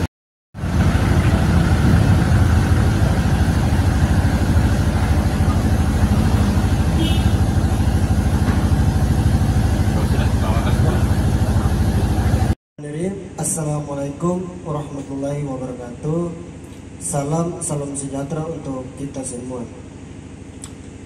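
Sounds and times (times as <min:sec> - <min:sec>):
motorcycle engine idling: 0:00.6 - 0:12.5.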